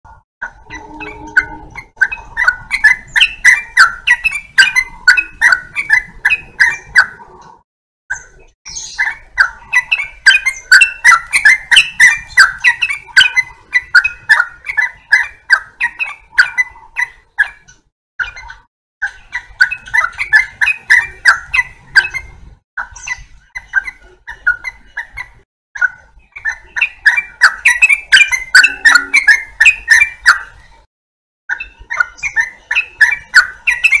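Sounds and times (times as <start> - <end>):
bulbul singing chirping notes: 27.0 - 30.2.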